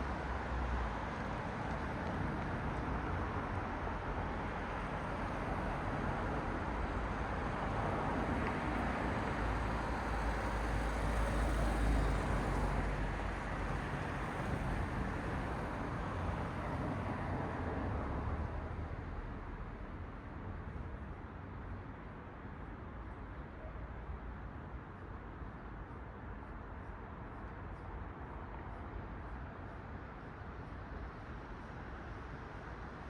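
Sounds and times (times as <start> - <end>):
cars passing on road: 0.1 - 23.3.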